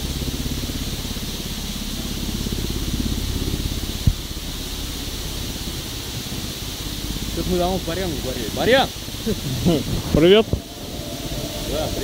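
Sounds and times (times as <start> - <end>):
tyres hissing on road: 1.1 - 12.0
wind rumbling on microphone: 9.1 - 12.0.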